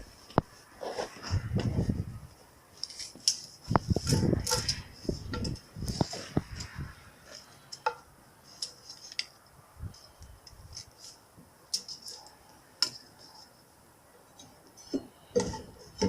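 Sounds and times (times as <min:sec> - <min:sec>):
small tools clicking and tapping: 0:02.8 - 0:10.9, 0:11.7 - 0:13.5.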